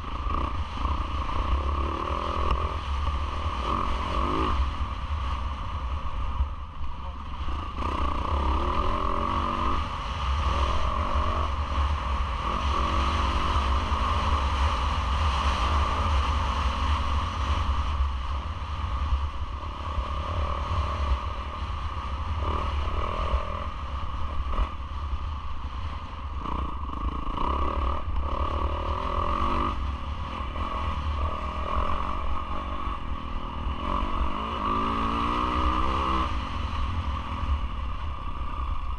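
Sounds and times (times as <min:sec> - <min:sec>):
motocross bike engine revving: 0:00.0 - 0:04.9, 0:07.0 - 0:17.5, 0:19.0 - 0:24.8, 0:26.3 - 0:38.9
wind rumble on microphone: 0:00.0 - 0:38.9.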